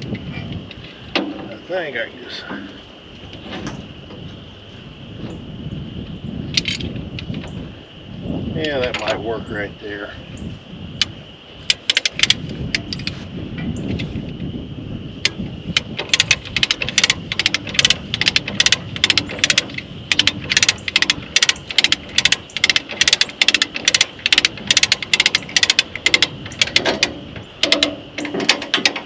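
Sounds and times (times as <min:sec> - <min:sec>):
ratchet pawl clicking: 0:11.7 - 0:13.1, 0:15.2 - 0:29.0.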